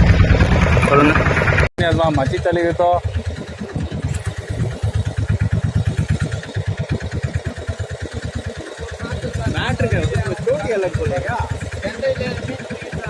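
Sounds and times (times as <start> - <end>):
boat engine chugging: 0.0 - 1.7.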